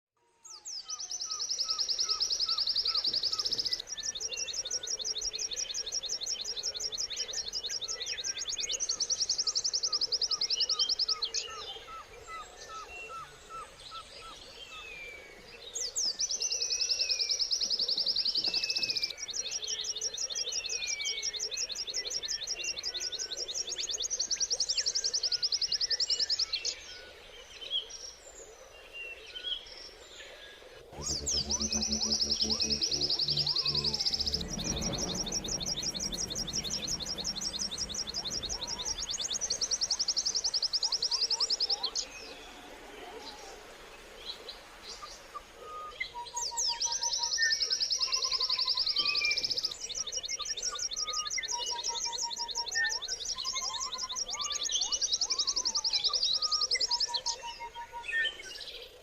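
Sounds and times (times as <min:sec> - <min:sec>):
faint bird chorus: 0:00.4 - 0:59.0
bird singing fast high trills: 0:30.9 - 0:40.6.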